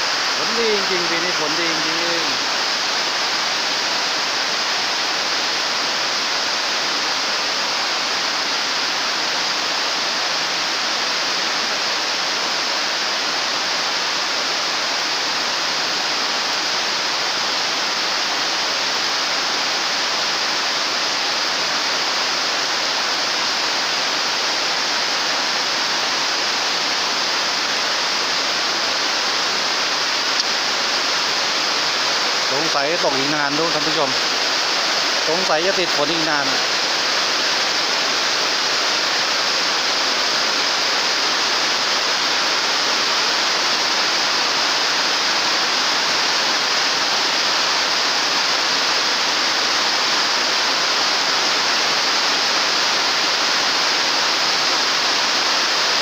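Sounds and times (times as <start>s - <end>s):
heavy rain on metal roofs: 0.0s - 56.0s
rain splashing on flooded concrete: 0.0s - 56.0s.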